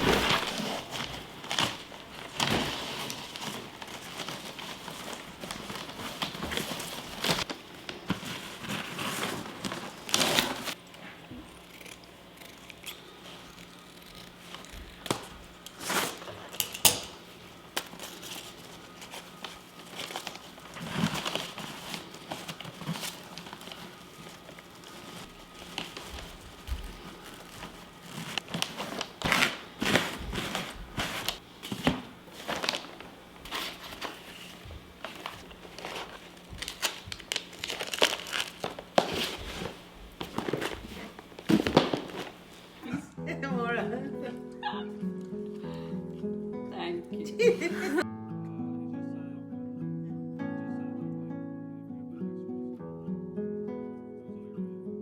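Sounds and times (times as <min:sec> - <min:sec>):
packaging crinkling and rustling: 0:00.0 - 0:11.1, 0:13.0 - 0:42.8.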